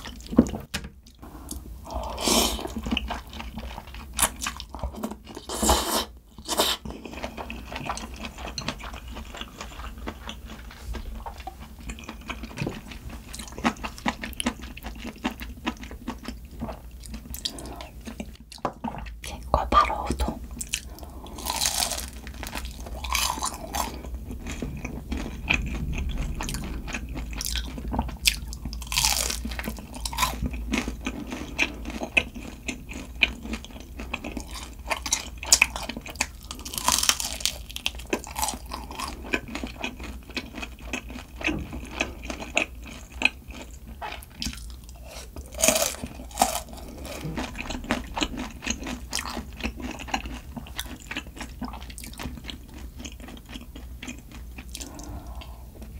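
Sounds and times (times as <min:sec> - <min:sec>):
person chewing and crunching food: 0:00.0 - 0:55.9.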